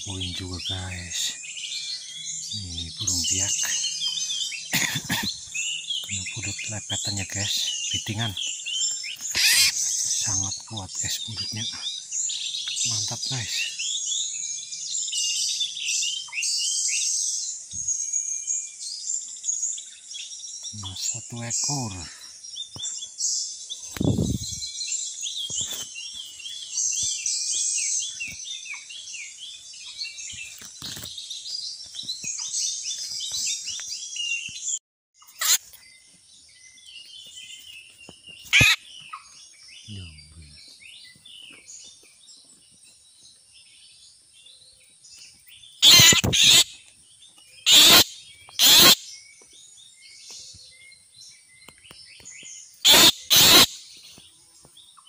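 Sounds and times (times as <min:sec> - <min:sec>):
bird harsh distress calls: 0:00.0 - 0:11.9, 0:12.6 - 0:14.0, 0:35.2 - 0:35.8, 0:38.4 - 0:39.2, 0:45.8 - 0:46.8, 0:47.6 - 0:49.1, 0:52.8 - 0:53.9
chorus of birds chirping: 0:00.0 - 0:55.0.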